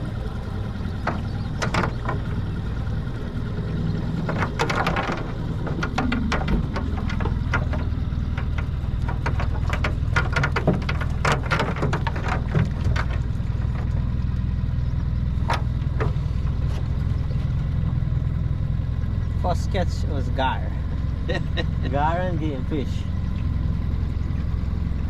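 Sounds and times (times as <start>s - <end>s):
boat engine idling: 0.0s - 25.0s
clicks and knocks: 0.7s - 14.4s.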